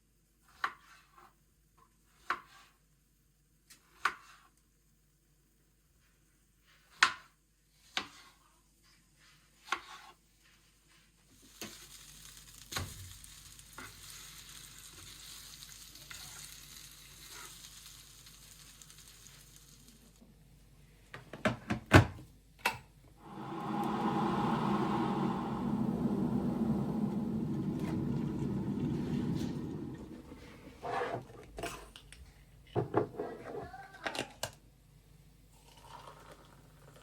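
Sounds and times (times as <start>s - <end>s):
food sizzling in a pan: 11.4s - 20.2s
steady rushing noise: 23.2s - 30.7s.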